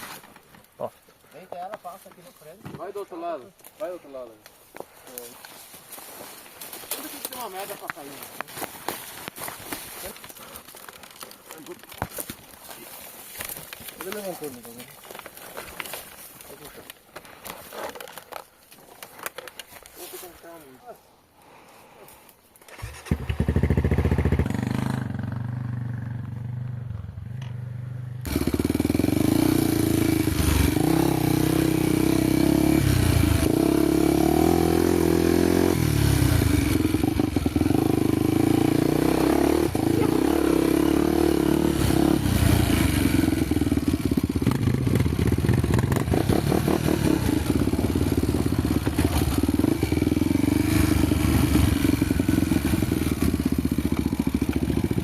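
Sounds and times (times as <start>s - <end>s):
motorcycle engine revving: 22.7s - 55.0s.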